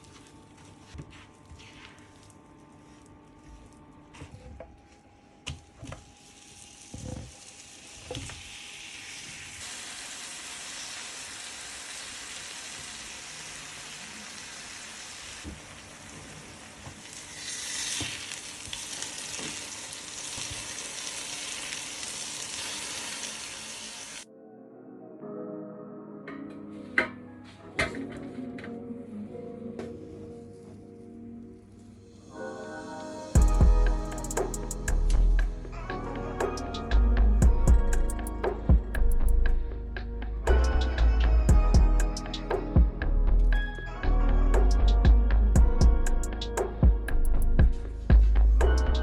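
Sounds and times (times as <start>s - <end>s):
butter sizzling in a frying pan: 6.3s - 24.2s.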